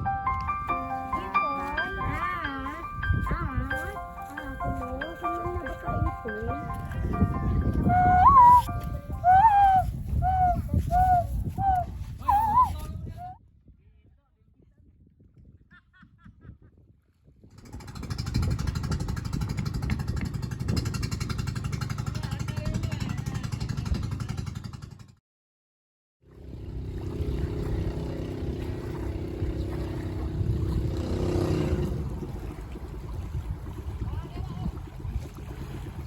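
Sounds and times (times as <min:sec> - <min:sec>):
boat engine running loudly: 0:17.6 - 0:24.3, 0:26.3 - 0:36.0.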